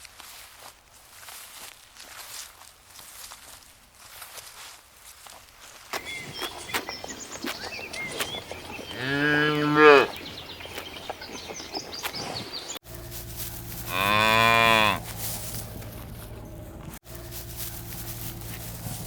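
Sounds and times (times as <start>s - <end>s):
cow mooing: 8.9s - 10.2s, 13.7s - 16.9s.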